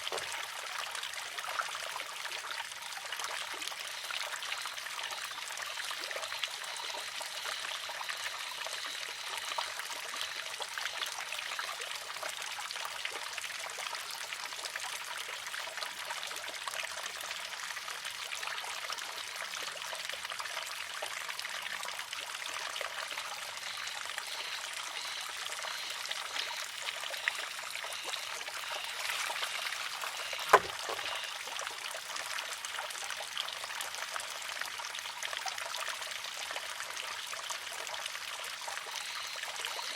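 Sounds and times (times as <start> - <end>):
water trickling: 0.0 - 39.9
bamboo arm clacking on stone: 29.1 - 31.2.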